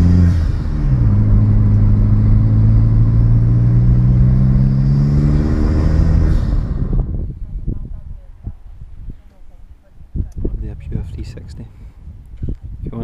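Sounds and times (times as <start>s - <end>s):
car engine accelerating: 0.0s - 7.2s
road and wind noise: 0.0s - 13.0s.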